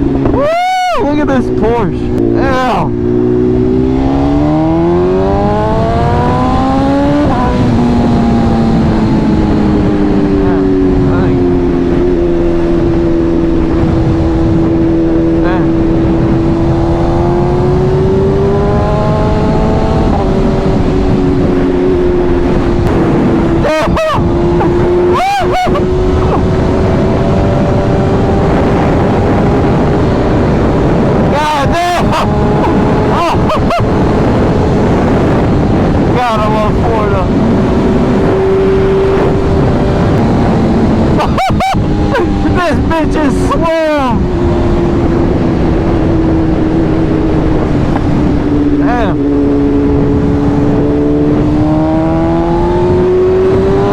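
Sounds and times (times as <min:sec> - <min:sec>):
motorcycle engine accelerating: 0:00.0 - 0:53.9
wind roar: 0:00.0 - 0:53.9.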